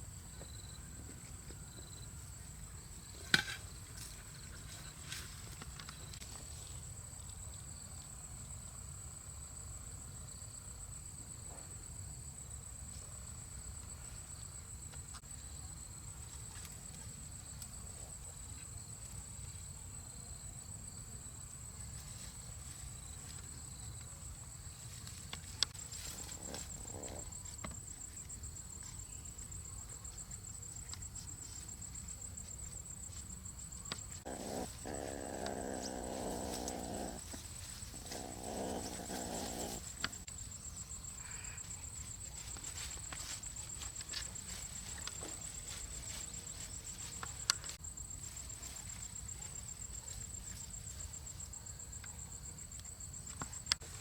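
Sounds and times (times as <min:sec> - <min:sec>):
insects trilling: 0:24.7 - 0:54.0.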